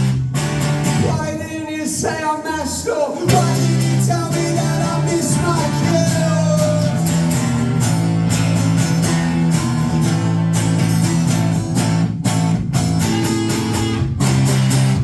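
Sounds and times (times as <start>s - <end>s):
strummed guitar: 0.0s - 15.0s
sustained low bass notes: 3.3s - 15.0s.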